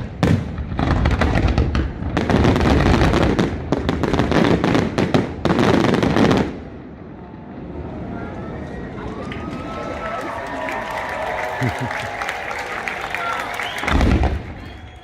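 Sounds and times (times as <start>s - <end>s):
fireworks bursts and crackling: 0.0s - 6.8s, 10.9s - 15.0s.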